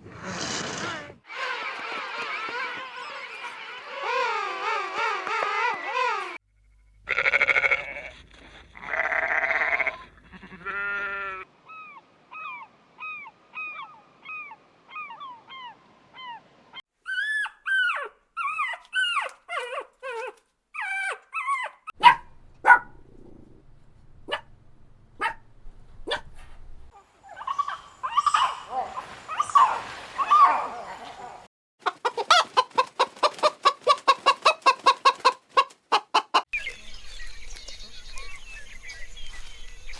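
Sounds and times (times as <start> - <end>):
animal bleats: 7.0 - 8.2, 8.8 - 11.5.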